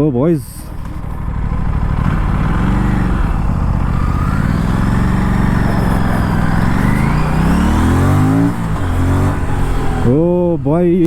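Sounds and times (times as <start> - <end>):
motorcycle engine accelerating: 0.5 - 11.0.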